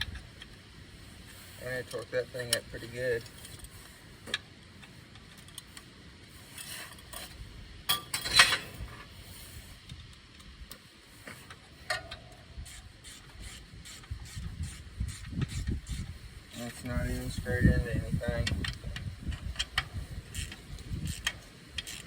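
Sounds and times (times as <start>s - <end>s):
metallic clatter: 6.5s - 9.1s
metal tools clinking: 7.9s - 8.8s
ratchet wrench clicking: 18.4s - 22.0s.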